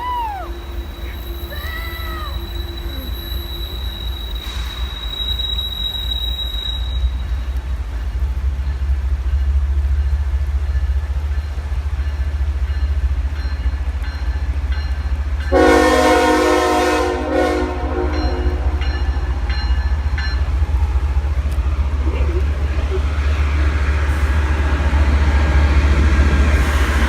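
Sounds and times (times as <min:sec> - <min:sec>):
train rumbling: 0:00.0 - 0:27.0
train horn blast: 0:15.5 - 0:19.4.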